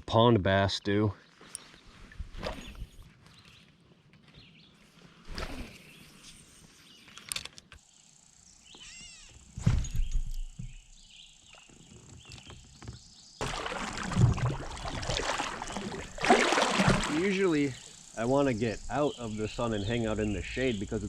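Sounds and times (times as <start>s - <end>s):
water rushing: 13.4s - 17.9s.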